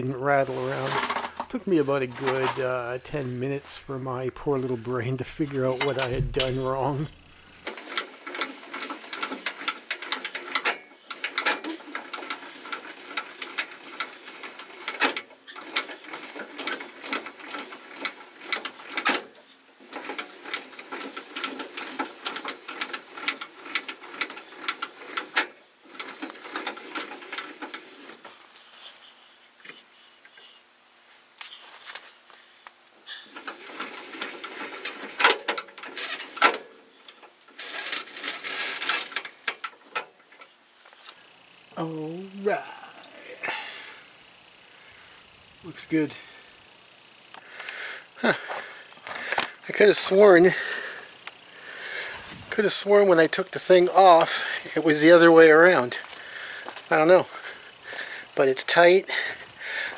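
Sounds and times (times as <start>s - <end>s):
cable hoist clicking: 4.6s - 28.3s, 33.2s - 41.7s, 45.2s - 59.9s.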